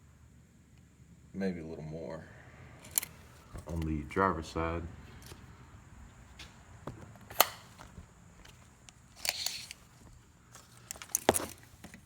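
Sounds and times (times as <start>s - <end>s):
objects clicking and knocking: 6.4s - 12.0s.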